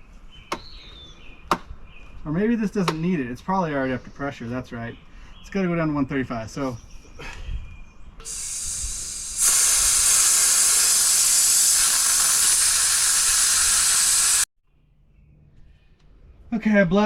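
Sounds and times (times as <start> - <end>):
compressed air hissing from tank: 8.2 - 14.5.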